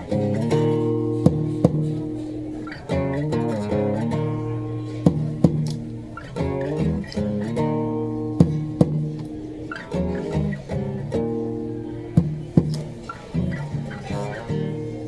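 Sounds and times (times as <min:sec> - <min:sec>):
percussive string hits: 0:00.0 - 0:11.4, 0:12.1 - 0:14.4
acoustic guitar strumming: 0:00.0 - 0:15.0.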